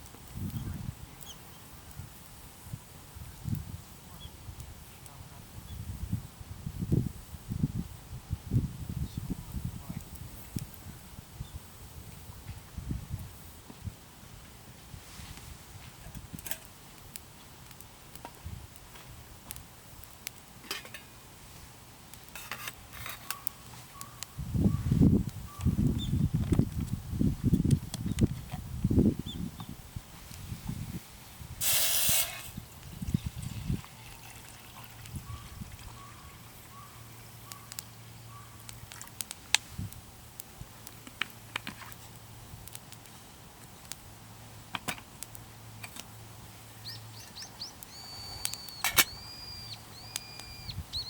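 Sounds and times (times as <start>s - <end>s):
sharp crackles: 16.2s - 24.4s, 36.4s - 44.2s, 45.0s - 51.0s
thin trickle of liquid: 32.5s - 36.5s.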